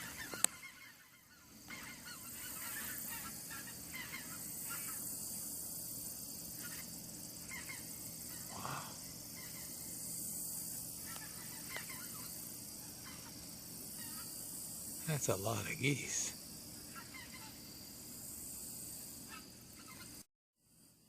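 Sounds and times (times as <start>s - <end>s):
geese honking: 0.0s - 5.0s, 11.0s - 13.4s, 16.9s - 17.6s
steady high hiss: 0.0s - 21.0s.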